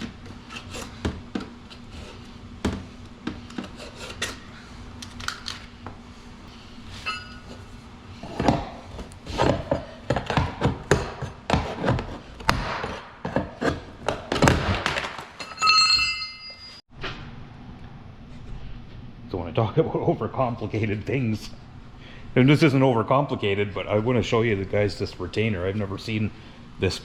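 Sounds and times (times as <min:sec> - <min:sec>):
ringing metal clink: 0:15.4 - 0:16.8.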